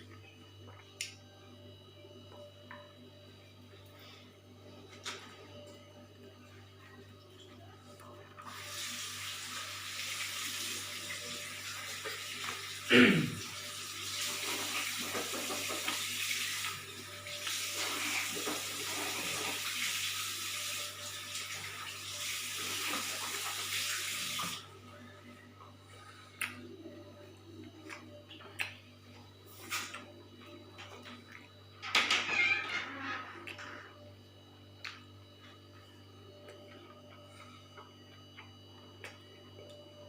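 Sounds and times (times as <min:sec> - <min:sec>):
water running from a tap: 0:08.5 - 0:24.7.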